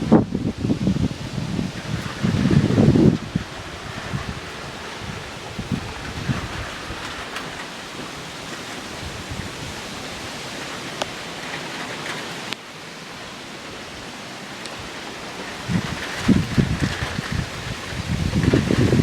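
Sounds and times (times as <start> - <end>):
wind buffeting microphone: 0.0 - 12.6, 13.6 - 19.0
heavy rain hissing: 0.0 - 19.0
raindrops ticking close by: 0.0 - 19.0.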